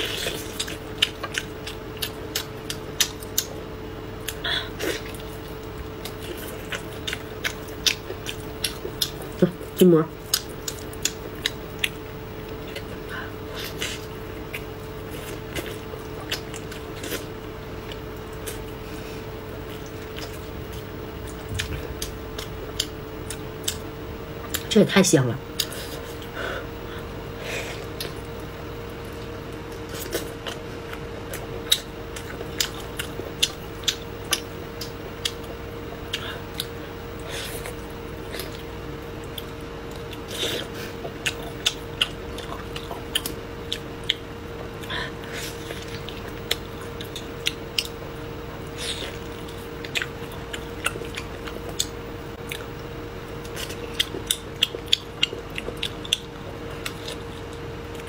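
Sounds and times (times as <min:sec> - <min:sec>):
biting and chewing meat: 0:00.0 - 0:03.6, 0:05.0 - 0:09.4, 0:27.8 - 0:58.0
faint steady hum: 0:00.0 - 0:58.0.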